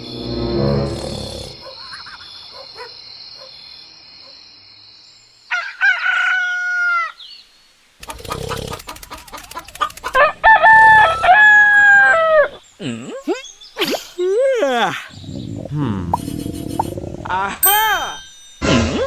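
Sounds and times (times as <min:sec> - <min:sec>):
rooster crowing: 0:05.5 - 0:07.2, 0:10.2 - 0:12.5.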